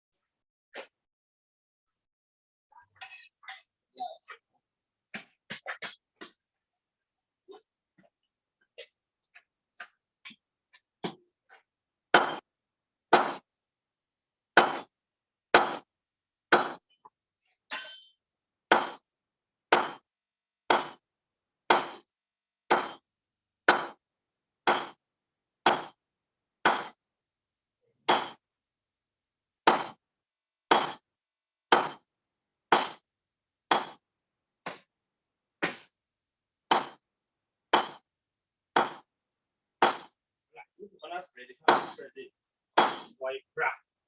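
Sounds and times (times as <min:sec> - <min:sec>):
hammer striking steel on anvil: 0:12.2 - 0:12.4, 0:13.1 - 0:13.5, 0:15.6 - 0:15.9, 0:16.5 - 0:16.8, 0:17.7 - 0:19.0, 0:19.7 - 0:20.0, 0:20.7 - 0:21.0, 0:21.7 - 0:22.1, 0:22.7 - 0:23.0, 0:23.7 - 0:24.0, 0:24.7 - 0:25.0, 0:25.7 - 0:26.0, 0:26.6 - 0:27.0, 0:28.1 - 0:28.4, 0:29.7 - 0:30.0, 0:30.7 - 0:31.0, 0:31.7 - 0:32.1, 0:32.7 - 0:33.0, 0:33.7 - 0:34.0, 0:36.7 - 0:37.0, 0:37.7 - 0:38.0, 0:38.8 - 0:39.1, 0:39.8 - 0:40.2, 0:41.7 - 0:42.1, 0:42.8 - 0:43.2.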